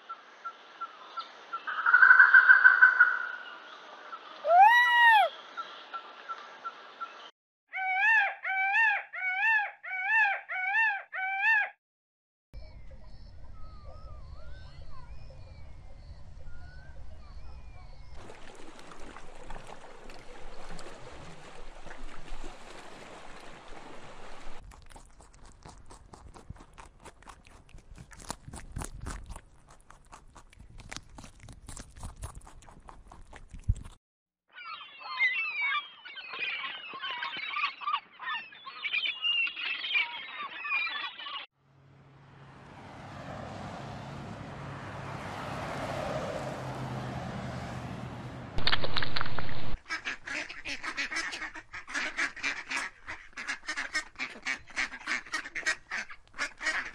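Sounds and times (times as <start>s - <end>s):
faint crackles: 48.6s - 50.5s.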